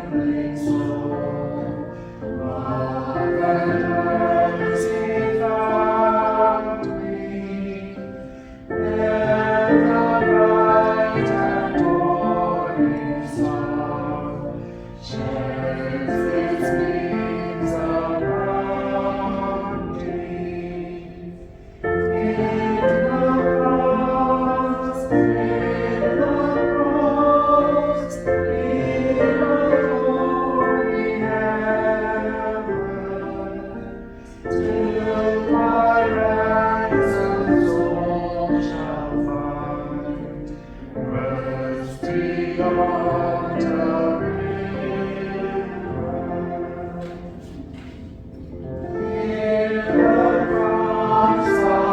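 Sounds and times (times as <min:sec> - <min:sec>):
choir singing: 0:00.0 - 0:51.9
singers breathing: 0:08.2 - 0:08.7, 0:14.6 - 0:15.0.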